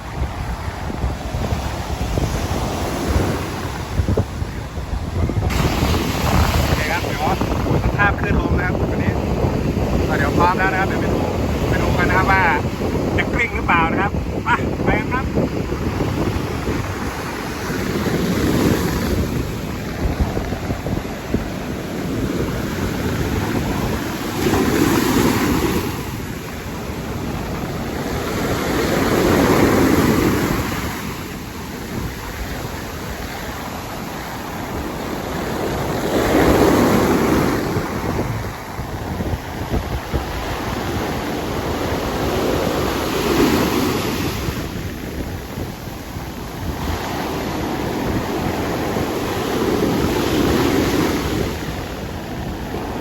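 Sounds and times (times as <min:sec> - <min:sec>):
ocean waves breaking: 0:00.0 - 0:53.0
wind buffeting microphone: 0:00.0 - 0:53.0.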